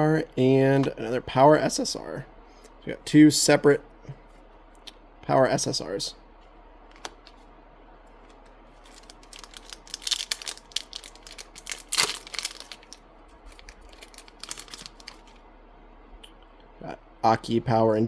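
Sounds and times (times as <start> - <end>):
wrapper crinkling: 8.2 - 15.4
card pack wrapper tearing: 8.8 - 15.4.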